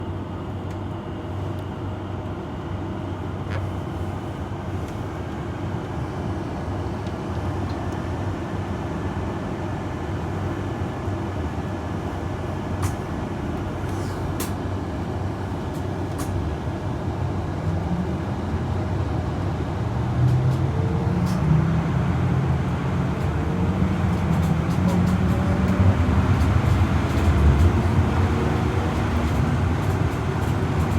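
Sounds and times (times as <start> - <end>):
vehicle engine rumbling: 20.0 - 30.9.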